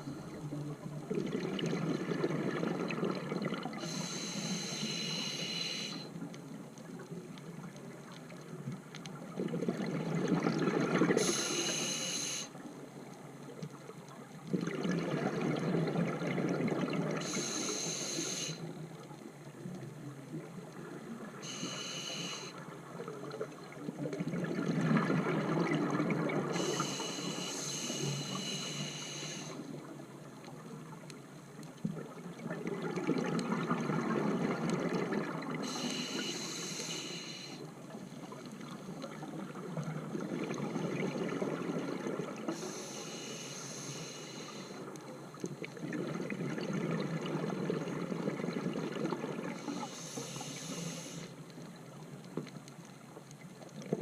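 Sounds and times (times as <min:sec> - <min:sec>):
hissing regulator inhale: 0:03.8 - 0:06.2, 0:11.2 - 0:12.6, 0:17.2 - 0:18.7, 0:21.4 - 0:22.6, 0:26.5 - 0:29.7, 0:35.6 - 0:37.7, 0:42.5 - 0:44.9, 0:49.6 - 0:51.4.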